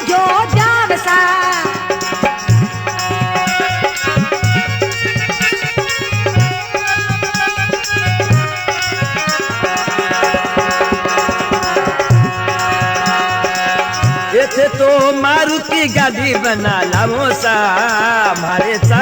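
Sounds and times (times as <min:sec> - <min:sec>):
hand drum strokes: 0:02.1 - 0:14.2.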